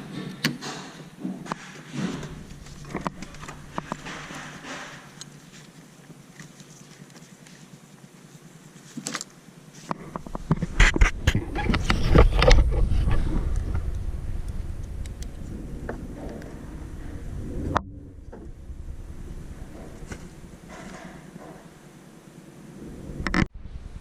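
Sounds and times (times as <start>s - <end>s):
engine starting and running: 1.9s - 5.4s.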